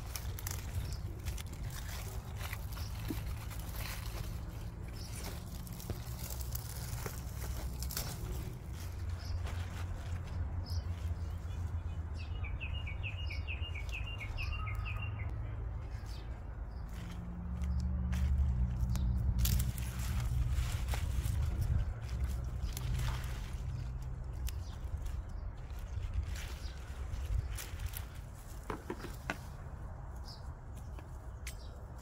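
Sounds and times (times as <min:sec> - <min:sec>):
rustles and clicks: 0:00.0 - 0:11.7
bird trill: 0:12.3 - 0:15.3
steady low rumble: 0:13.6 - 0:28.5.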